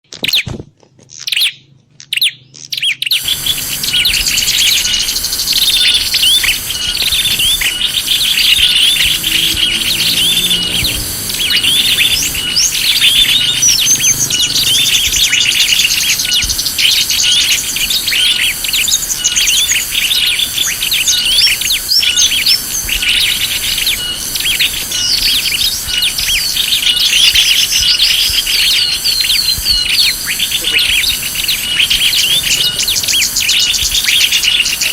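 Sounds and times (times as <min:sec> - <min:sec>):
small birds chirping and twittering: 0:00.1 - 0:34.9
high repeated bird call: 0:01.2 - 0:34.9.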